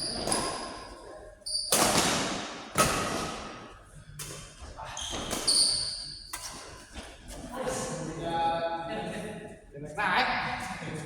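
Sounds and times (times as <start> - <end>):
short high squeaks: 5.0 - 6.2.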